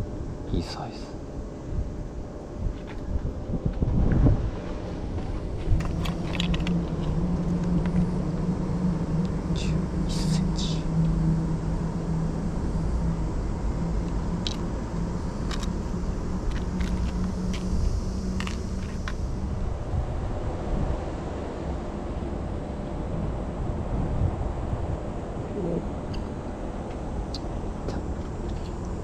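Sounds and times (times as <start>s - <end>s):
low rumbling wind: 0.0s - 29.0s
motor droning: 1.1s - 29.0s.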